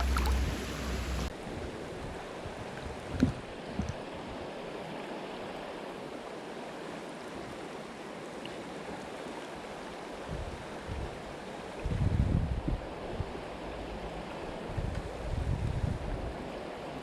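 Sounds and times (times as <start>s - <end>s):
creek water rushing over rocks: 0.0s - 1.3s
low bumps: 0.0s - 1.3s.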